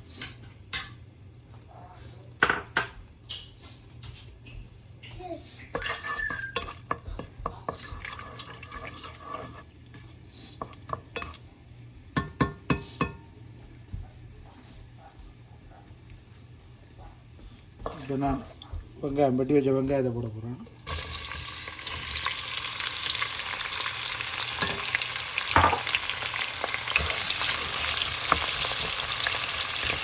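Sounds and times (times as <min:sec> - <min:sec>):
metal utensils clinking on pan: 0:05.7 - 0:09.6, 0:24.6 - 0:25.0.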